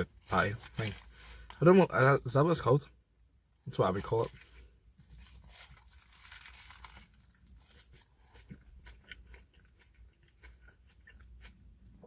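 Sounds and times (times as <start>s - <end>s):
chewing with mouth clicks: 7.4s - 12.0s.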